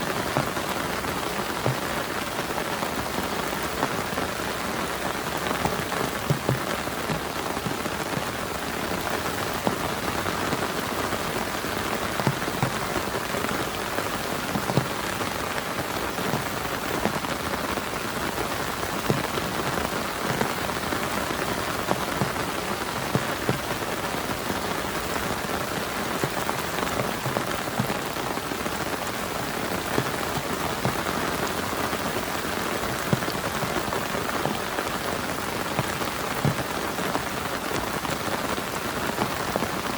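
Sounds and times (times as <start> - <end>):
heavy rain on a tarp: 0.0 - 39.9.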